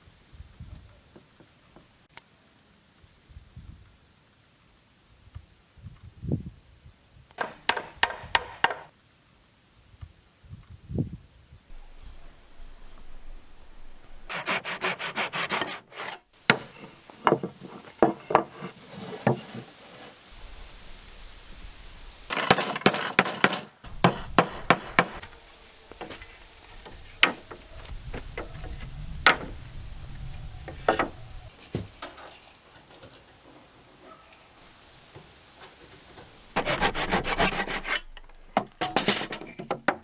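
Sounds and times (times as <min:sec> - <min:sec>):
wood knocking: 0:07.4 - 0:08.9, 0:15.4 - 0:19.7, 0:20.4 - 0:32.1, 0:36.6 - 0:40.0
hand saw cutting wood: 0:14.0 - 0:29.5, 0:35.6 - 0:40.0.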